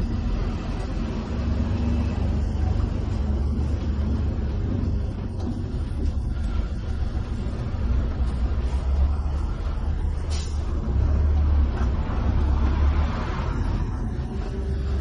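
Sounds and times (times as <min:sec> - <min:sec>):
bus engine and tyre rumble: 0:00.0 - 0:15.0.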